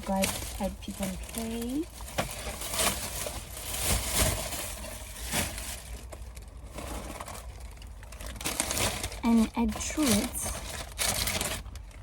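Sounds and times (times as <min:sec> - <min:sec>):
plastic bags rustling: 0:00.0 - 0:12.0.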